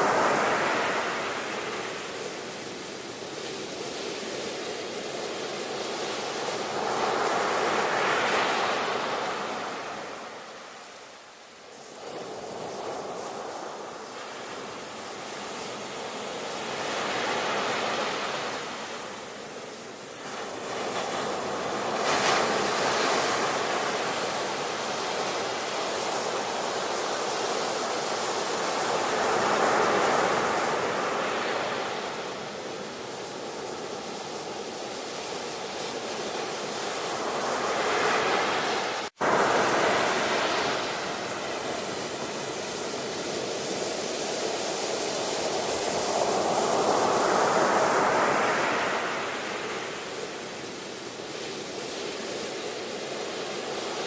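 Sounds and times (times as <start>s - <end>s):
ocean waves breaking: 0.0s - 11.0s, 11.8s - 54.0s.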